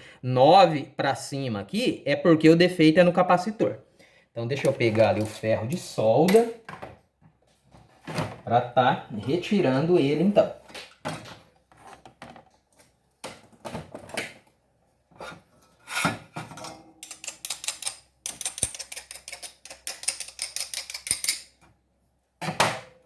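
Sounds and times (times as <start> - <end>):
tools clattering on a workbench: 15.3 - 21.7.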